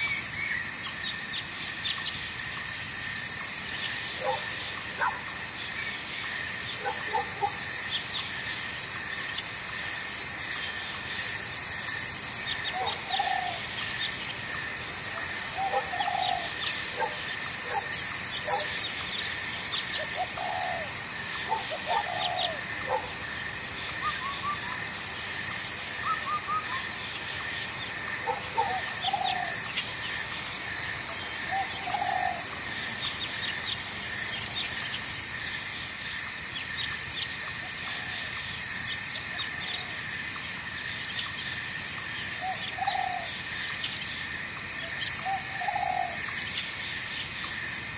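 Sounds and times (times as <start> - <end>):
insects chirring: 0.0 - 47.9
bird giving low calls: 15.5 - 16.6, 21.5 - 22.6.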